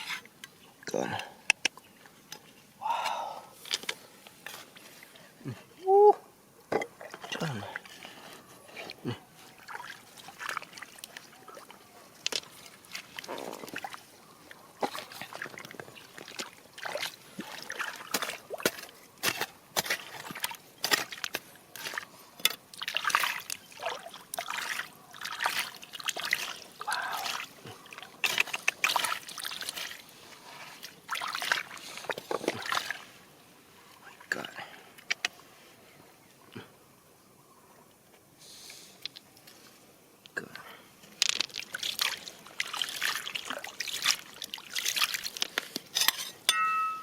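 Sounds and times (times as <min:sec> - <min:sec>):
water splashing and sloshing: 0:06.7 - 0:08.2, 0:08.8 - 0:33.4, 0:41.2 - 0:46.5
stones clicking and knocking: 0:41.0 - 0:42.2.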